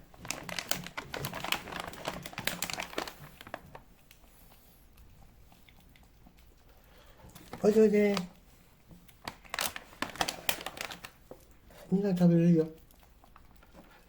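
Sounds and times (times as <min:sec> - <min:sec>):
plastic packaging crinkling: 0:00.0 - 0:03.9, 0:07.4 - 0:08.4, 0:09.1 - 0:11.5.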